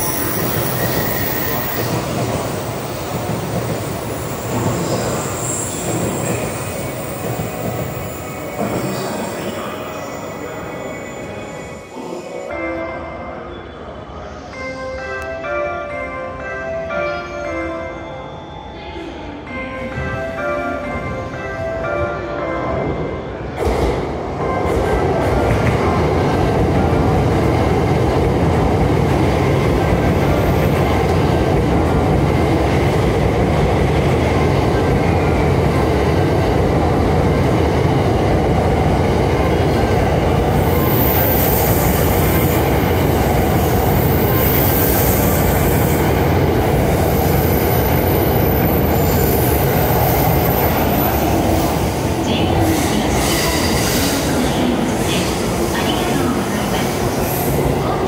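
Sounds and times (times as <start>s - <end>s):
train wheels rumbling on rail: 0.0s - 10.6s.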